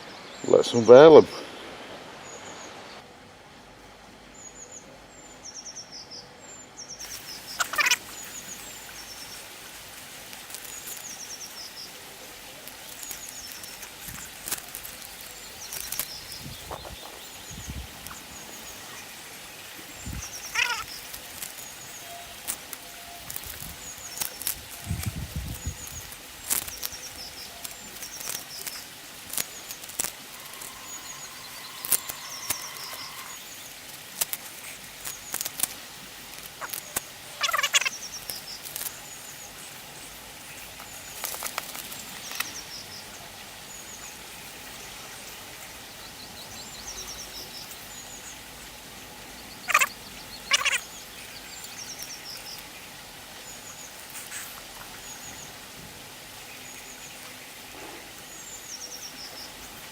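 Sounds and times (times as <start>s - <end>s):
small birds chirping: 4.3s - 59.9s
tape and film peeling off: 7.0s - 17.2s, 20.0s - 39.1s, 40.6s - 42.6s.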